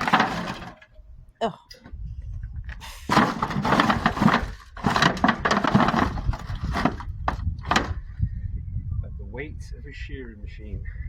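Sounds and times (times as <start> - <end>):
scrap clattering in truck bed: 0.0 - 0.9, 2.8 - 8.0.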